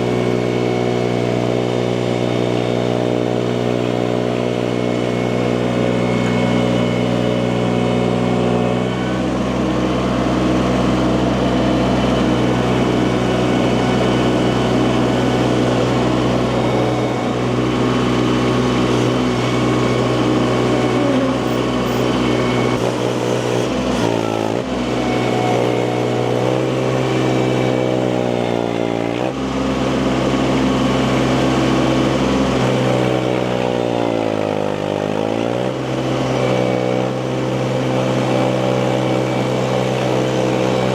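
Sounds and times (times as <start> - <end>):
engine running: 0.0 - 40.9.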